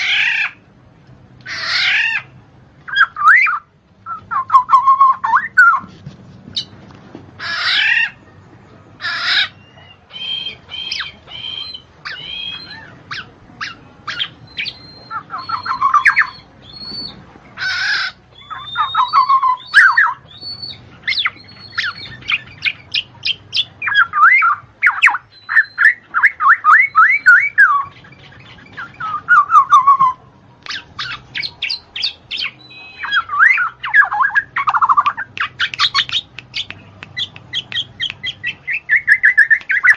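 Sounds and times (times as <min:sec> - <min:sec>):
bird chirping and trilling: 0:00.0 - 0:00.6, 0:01.4 - 0:05.9, 0:06.5 - 0:06.8, 0:07.4 - 0:08.3, 0:09.0 - 0:39.9
harsh rasping bird calls: 0:00.0 - 0:00.7, 0:01.4 - 0:05.9, 0:06.5 - 0:06.8, 0:07.4 - 0:08.3, 0:09.0 - 0:39.9.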